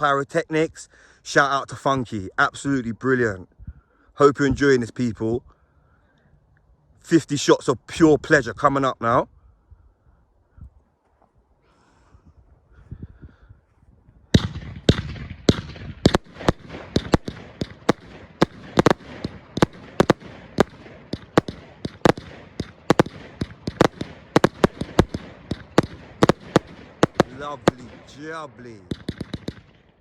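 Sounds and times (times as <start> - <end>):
firework cake reports: 16.1 - 29.6.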